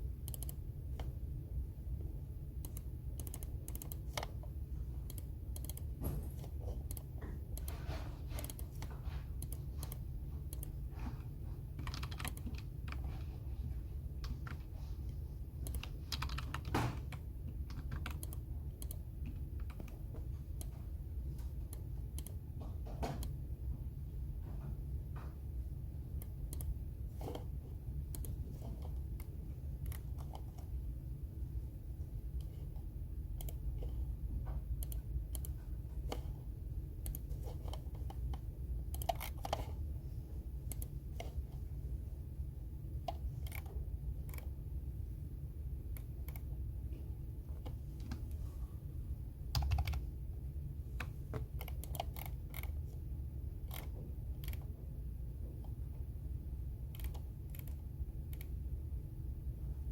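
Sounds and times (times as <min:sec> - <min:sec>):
keyboard typing clicks: 0:00.2 - 0:01.2, 0:02.6 - 0:10.8, 0:11.8 - 0:13.0, 0:15.6 - 0:20.8, 0:21.6 - 0:22.4, 0:26.2 - 0:27.5, 0:28.1 - 0:30.8, 0:33.3 - 0:36.3, 0:37.0 - 0:39.7, 0:40.7 - 0:41.4, 0:43.0 - 0:44.5, 0:49.5 - 0:50.0, 0:51.0 - 0:52.8, 0:56.9 - 0:58.6.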